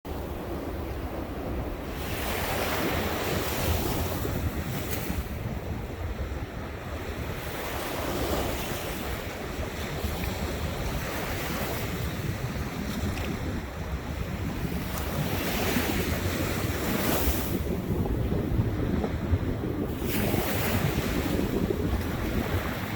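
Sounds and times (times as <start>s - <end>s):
waves breaking on shore: 0.1s - 22.9s
wind buffeting microphone: 0.1s - 22.9s.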